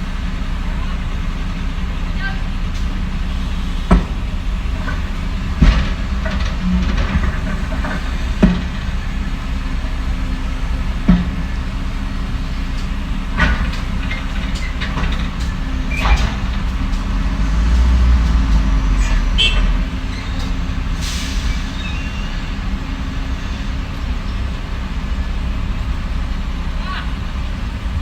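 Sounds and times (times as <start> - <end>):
diesel machinery running: 0.0 - 28.0.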